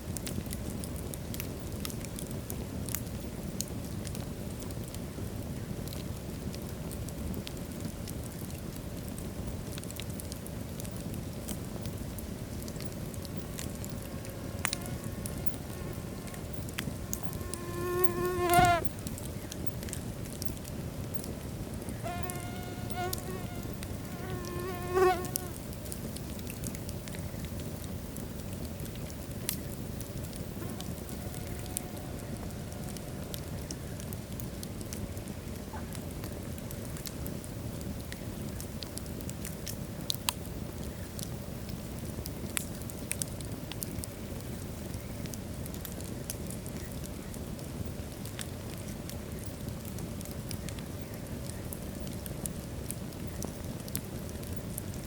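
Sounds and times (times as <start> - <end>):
wood fire crackling: 0.0 - 55.0
whistling buzzing tones from fire: 11.8 - 25.4, 29.5 - 34.1.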